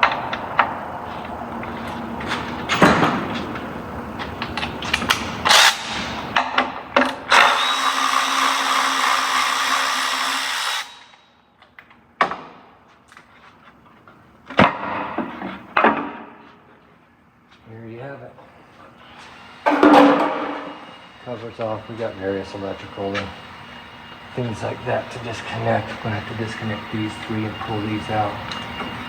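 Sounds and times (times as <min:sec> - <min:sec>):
power drill-driver spinning: 0:07.3 - 0:11.2.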